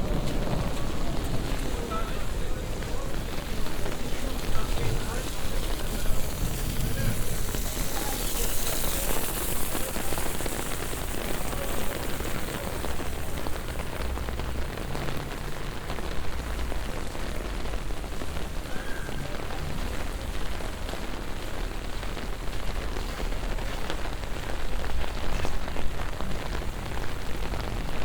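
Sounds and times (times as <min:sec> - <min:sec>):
heavy rain on street: 0:00.0 - 0:28.0.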